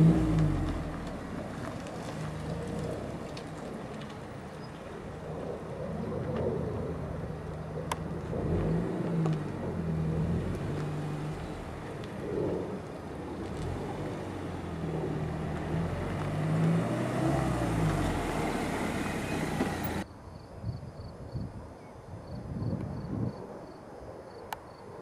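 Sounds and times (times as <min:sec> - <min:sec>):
car engine driving by: 0:00.0 - 0:04.7, 0:08.2 - 0:20.0
tyre and road noise: 0:00.0 - 0:20.1.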